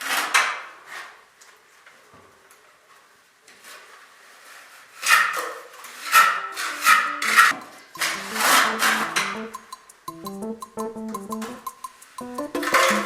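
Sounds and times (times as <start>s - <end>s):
background music with plucked notes: 6.5s - 13.0s.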